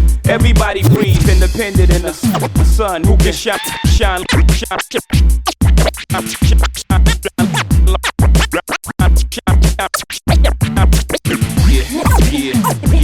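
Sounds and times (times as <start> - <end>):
heavy kick drum beat: 0.0 - 13.0
record scratching: 0.8 - 1.3, 2.3 - 2.5, 12.0 - 12.8.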